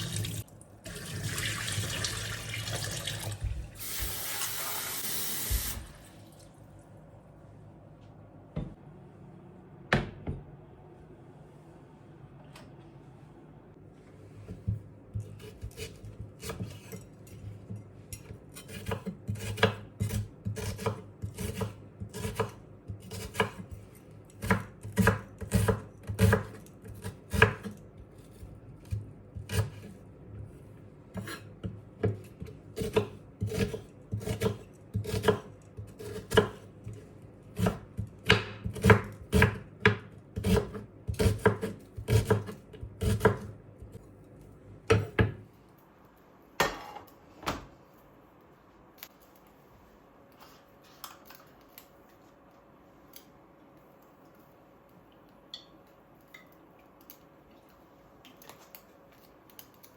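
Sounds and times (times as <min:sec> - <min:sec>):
knife chopping on cutting board: 0:18.6 - 0:23.7, 0:31.2 - 0:36.6, 0:37.6 - 0:44.0, 0:44.9 - 0:45.4.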